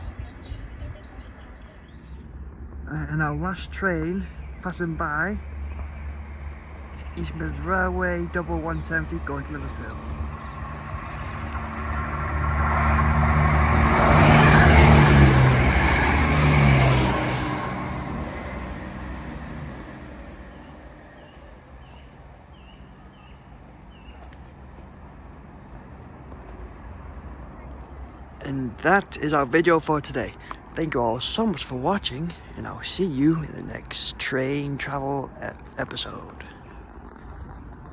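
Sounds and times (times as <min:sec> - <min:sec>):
diesel train passing: 0:01.2 - 0:23.3, 0:28.4 - 0:36.4.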